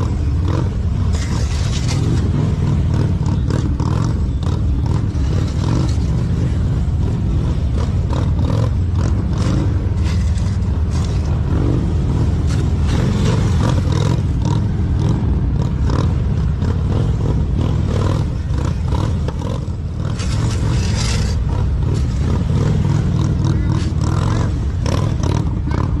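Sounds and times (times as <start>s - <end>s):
motorcycle engine running: 0.0s - 26.0s
scraping or rattling noises: 0.0s - 26.0s.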